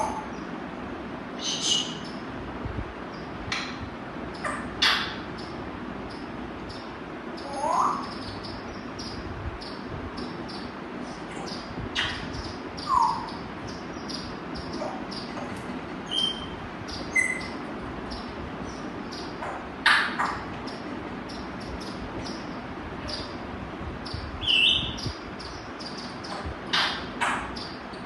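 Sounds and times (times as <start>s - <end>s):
parrot calling: 0.0s - 0.4s, 1.4s - 2.2s, 4.4s - 5.3s, 6.8s - 9.2s, 11.3s - 17.6s, 18.2s - 23.4s.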